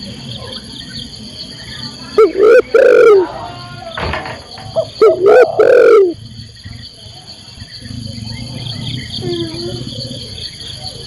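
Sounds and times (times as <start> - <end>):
dove cooing: 2.2 - 3.4, 4.6 - 6.2, 8.1 - 10.9.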